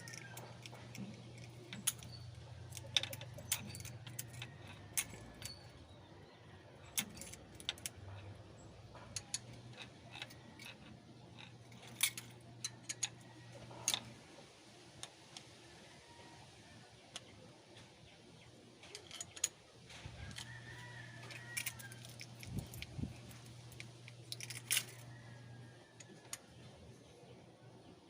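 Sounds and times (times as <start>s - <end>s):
metallic clinks of hand tools: 0.0s - 5.8s
steady low hum: 0.0s - 15.1s, 17.9s - 28.0s.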